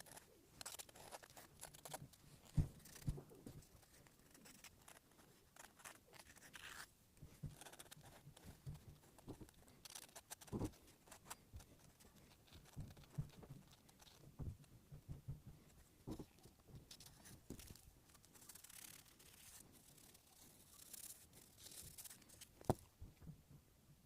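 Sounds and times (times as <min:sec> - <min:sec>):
pencil scratching on paper: 0:07.5 - 0:14.2.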